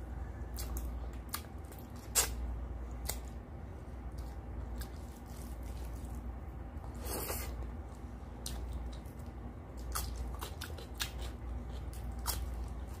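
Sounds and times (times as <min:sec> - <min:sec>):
low steady hum: 0:00.0 - 0:13.0
chewing rice: 0:04.0 - 0:13.0.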